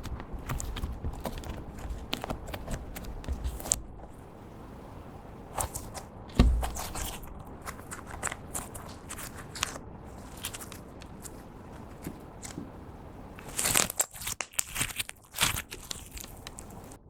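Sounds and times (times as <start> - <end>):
small clicks and crackles: 0.0 - 4.2, 5.5 - 17.0
slime squishing: 0.0 - 4.4, 5.5 - 17.0
loud thump: 6.3 - 7.1.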